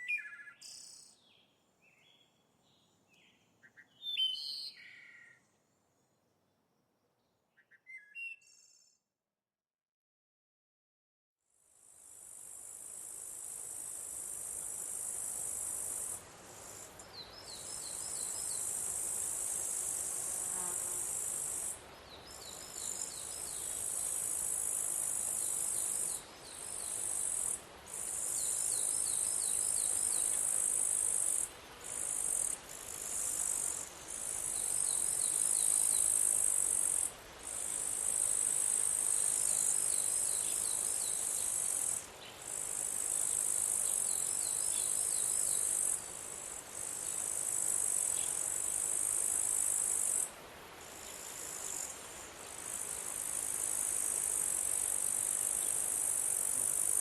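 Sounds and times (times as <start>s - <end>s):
quick low insect chirps: 12.2s - 57.0s
insect trilling: 52.8s - 57.0s.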